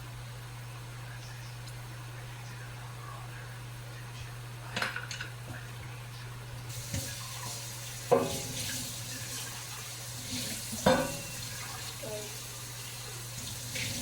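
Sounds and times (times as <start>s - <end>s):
steady low hum: 0.0s - 14.0s
water running into sink: 6.7s - 14.0s
dishes clanking: 8.1s - 8.7s, 10.8s - 11.4s.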